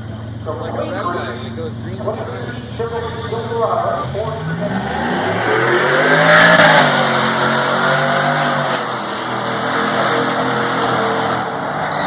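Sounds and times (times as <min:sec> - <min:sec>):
pickup truck engines accelerating: 0:00.0 - 0:12.0.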